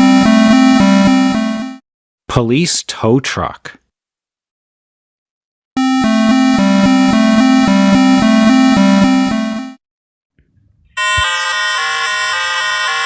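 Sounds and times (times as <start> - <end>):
electronic two-tone warning siren: 0.0 - 1.8, 5.8 - 9.8, 11.0 - 13.0.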